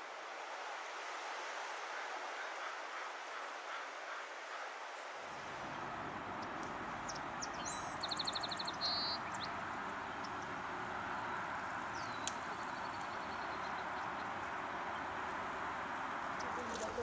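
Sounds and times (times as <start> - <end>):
outdoor background hiss: 0.0 - 17.0
songbird trilling: 6.4 - 9.5.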